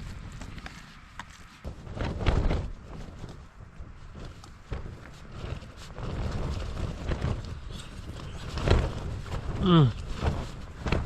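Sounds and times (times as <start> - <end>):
wind gusting against tent: 0.0 - 11.0.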